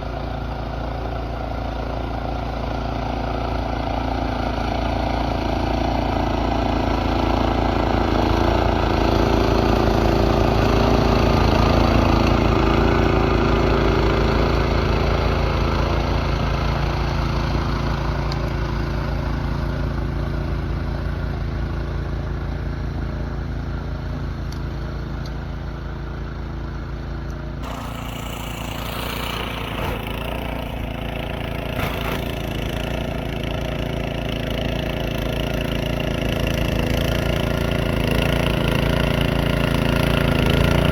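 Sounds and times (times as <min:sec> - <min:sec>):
small gasoline engine running: 0:00.0 - 0:40.9.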